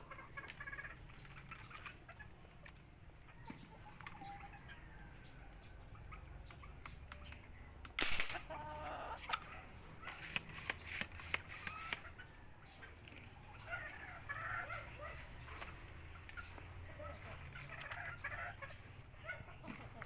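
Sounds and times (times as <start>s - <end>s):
chickens clucking: 0.0s - 20.0s
quick run of sharp clicks: 10.0s - 12.1s.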